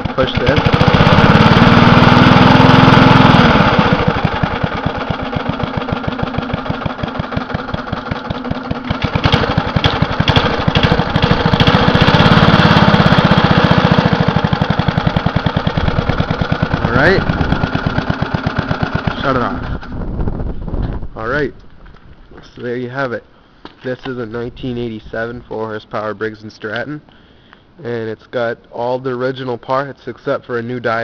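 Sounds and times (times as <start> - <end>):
lawn mower engine revving and idling: 0.0 - 20.1.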